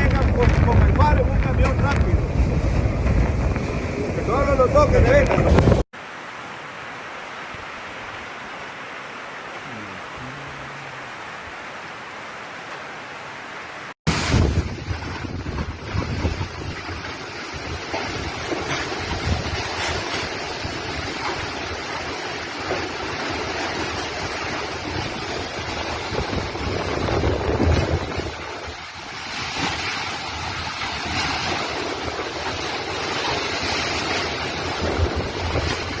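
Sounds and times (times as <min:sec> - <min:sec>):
wind gusts buffeting microphone: 0:00.0 - 0:05.8, 0:14.1 - 0:36.0.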